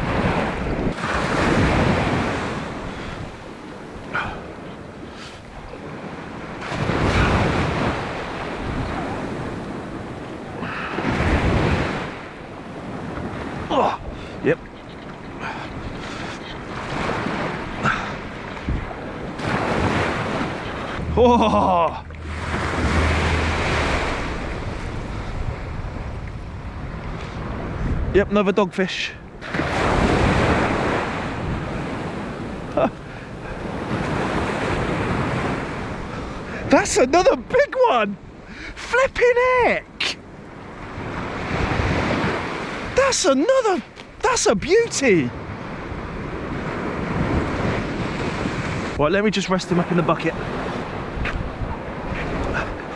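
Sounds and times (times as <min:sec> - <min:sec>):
wind on microphone: 0:00.0 - 0:28.6, 0:29.2 - 0:36.7, 0:45.4 - 0:49.0, 0:50.4 - 0:52.9
waves breaking on beach: 0:00.0 - 0:52.9.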